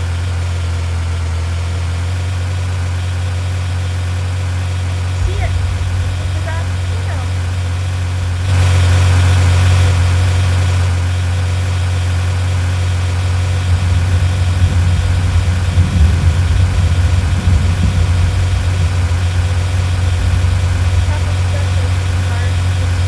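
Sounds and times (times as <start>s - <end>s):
vehicle engine idling: 0.0s - 23.0s
uneven low rumble: 5.0s - 11.2s, 13.6s - 23.0s.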